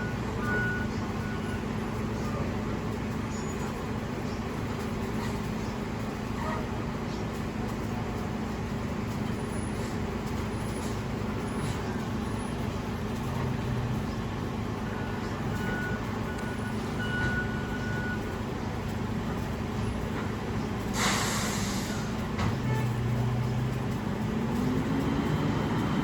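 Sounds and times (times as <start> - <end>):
truck engine humming: 0.0 - 26.0.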